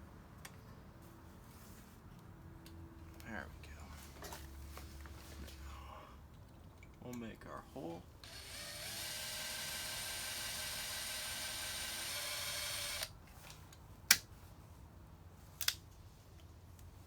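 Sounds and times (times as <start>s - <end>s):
electric drill boring into metal: 8.2s - 13.1s.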